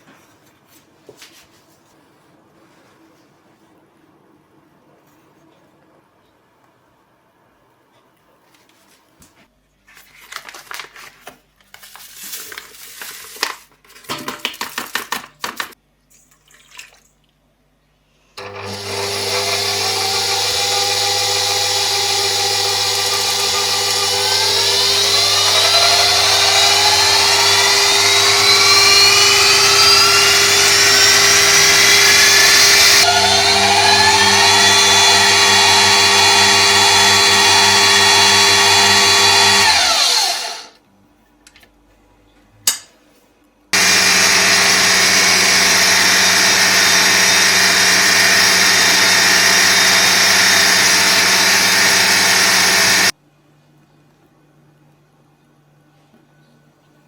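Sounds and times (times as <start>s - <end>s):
kitchen appliance motor running: 18.4s - 40.8s, 43.8s - 53.1s.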